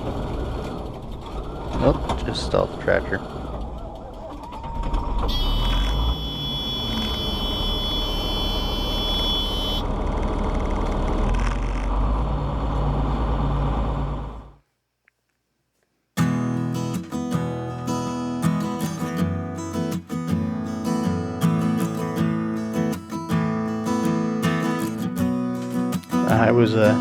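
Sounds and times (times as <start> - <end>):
tractor low rumble: 0.0 - 14.6
high-pitched warning buzzer: 5.3 - 9.9.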